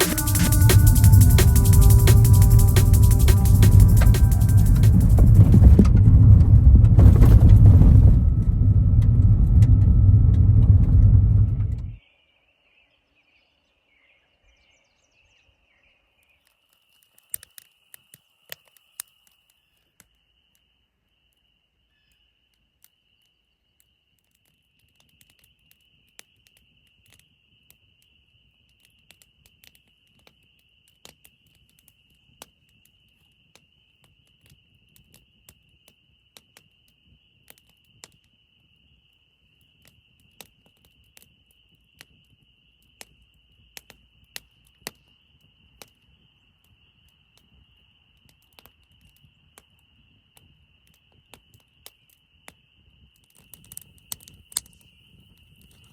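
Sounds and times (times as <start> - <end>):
sharp clicks and ticks: 0.0 - 6.0.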